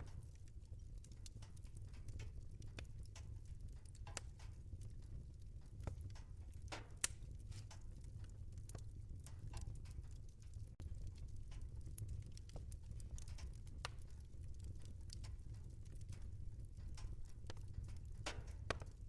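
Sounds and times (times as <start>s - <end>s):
flames rumbling: 0.0s - 19.0s
wood fire crackling: 0.0s - 19.0s.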